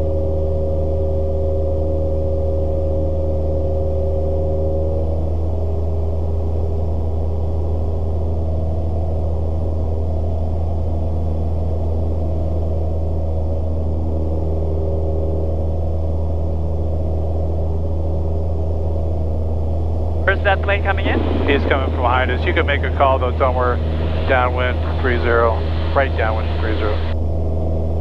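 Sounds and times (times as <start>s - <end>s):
aircraft engine and propeller droning: 0.0s - 28.0s.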